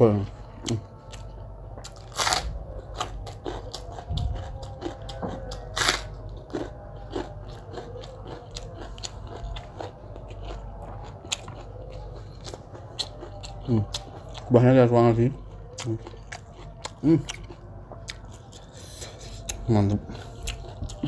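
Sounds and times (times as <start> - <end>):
food crunching and chewing: 0.1 - 21.0.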